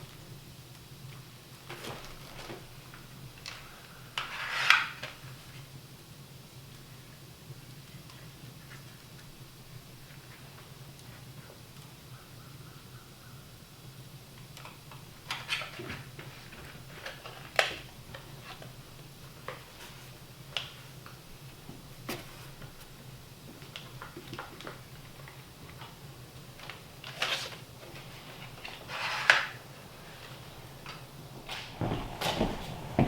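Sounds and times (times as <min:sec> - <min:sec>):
steady low hum: 0:29.7 - 0:33.0.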